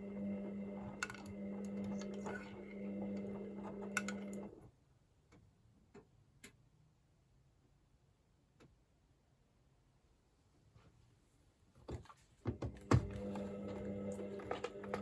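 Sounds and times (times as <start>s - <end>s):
washing machine humming: 0.0s - 4.6s, 12.5s - 15.0s.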